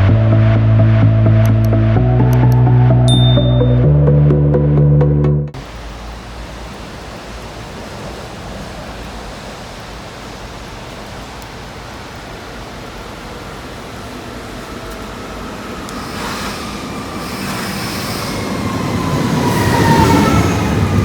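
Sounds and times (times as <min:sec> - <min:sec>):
steady rain hiss: 0:05.6 - 0:19.7.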